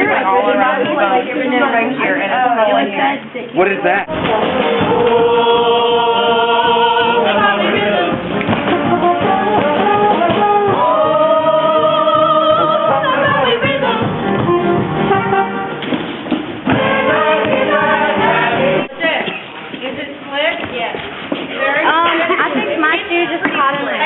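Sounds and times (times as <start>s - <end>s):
ensemble singing musical theatre: 0.0s - 3.4s, 4.1s - 19.6s
instrumental accompaniment: 4.0s - 19.0s.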